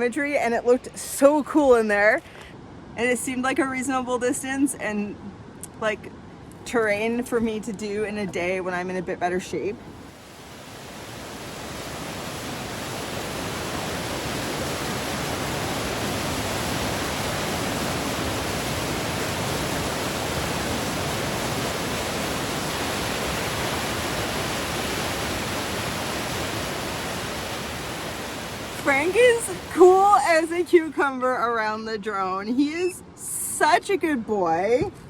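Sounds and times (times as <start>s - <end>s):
fast-flowing water rushing: 9.9s - 30.9s.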